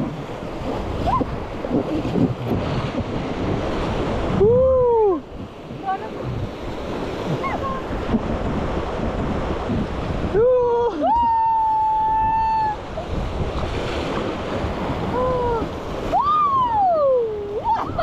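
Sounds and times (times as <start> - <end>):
river water rushing: 0.0 - 18.0
wind on microphone: 0.0 - 18.0
people yelling and whooping: 10.3 - 13.0, 15.2 - 18.0.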